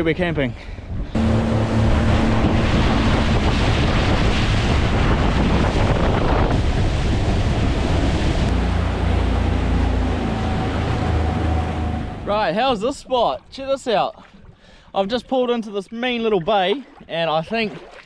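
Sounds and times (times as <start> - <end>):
wind buffeting microphone: 0.8 - 13.5
outboard motor running: 1.1 - 12.5
rushing water: 1.2 - 14.8, 15.5 - 18.0.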